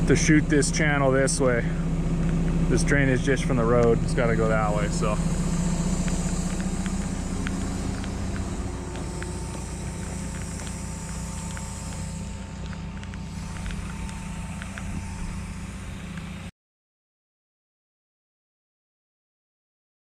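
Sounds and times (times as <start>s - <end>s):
excavator diesel engine running: 0.0s - 16.5s
sharp ticks and clicks: 3.8s - 16.5s.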